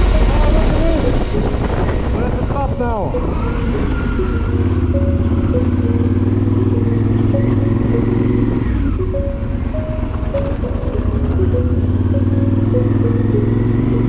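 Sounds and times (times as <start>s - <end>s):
v-twin engine running: 4.0s - 14.0s.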